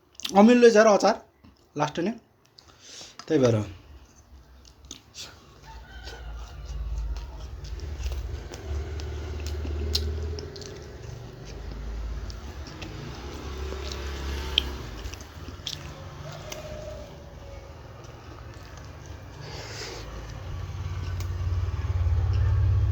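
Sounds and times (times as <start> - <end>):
crunchy chewing: 1.4 - 22.9
low rumble: 6.6 - 14.0, 18.3 - 22.9.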